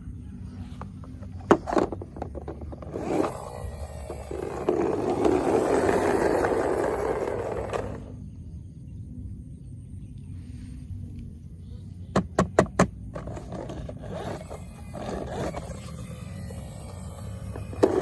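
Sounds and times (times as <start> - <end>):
rough scraping noise: 0.6 - 8.2, 13.2 - 16.3.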